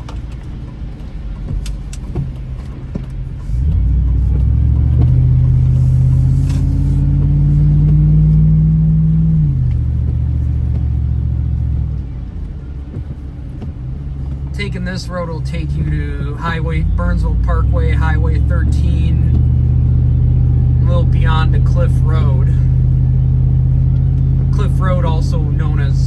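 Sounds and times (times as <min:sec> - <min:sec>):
car engine accelerating: 0:00.0 - 0:26.0
road rumble: 0:00.0 - 0:26.0.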